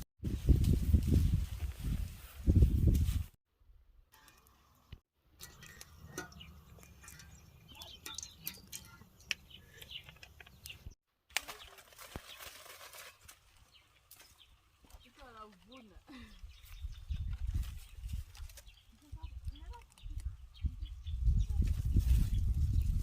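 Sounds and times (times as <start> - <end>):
birds chirping: 4.8 - 12.4, 13.6 - 21.6.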